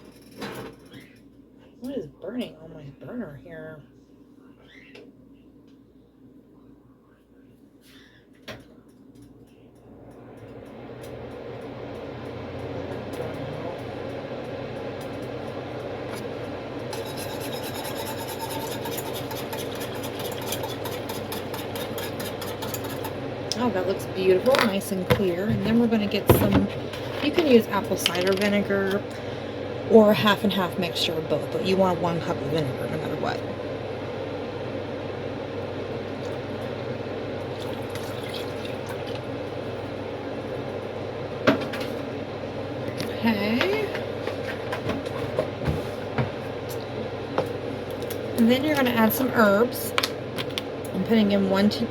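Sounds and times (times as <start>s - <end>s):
steady hum: 0.0s - 51.9s
whisk scraping in a pot: 16.8s - 23.3s
liquid pouring and splashing: 37.6s - 39.2s.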